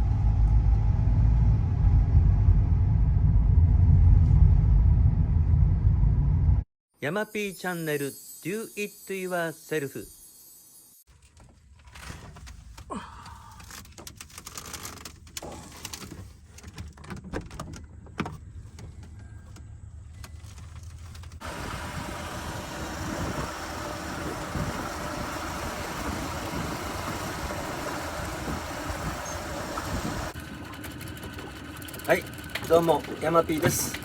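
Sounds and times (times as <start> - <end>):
engine running steadily: 0.0 - 5.6, 20.2 - 34.0.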